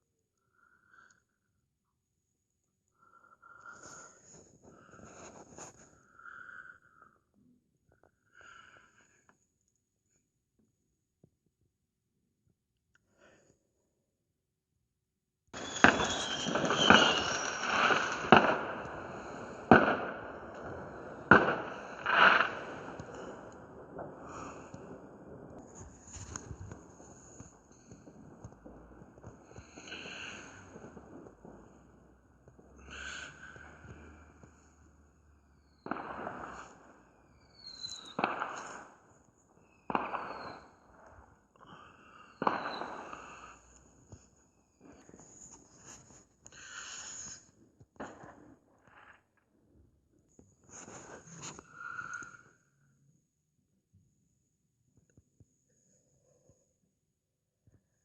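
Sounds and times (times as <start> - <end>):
fireworks crackling: 3.5 - 6.4, 15.6 - 49.2
fireworks bangs: 15.6 - 44.2, 48.0 - 48.6.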